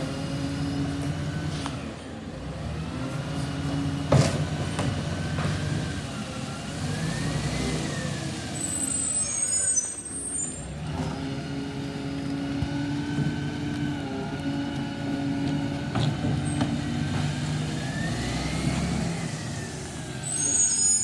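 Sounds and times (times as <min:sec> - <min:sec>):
garbage truck engine running: 0:00.0 - 0:09.1, 0:10.6 - 0:21.0
high hiss and squeal: 0:08.6 - 0:10.7, 0:19.5 - 0:21.0
engine whine: 0:10.6 - 0:21.0.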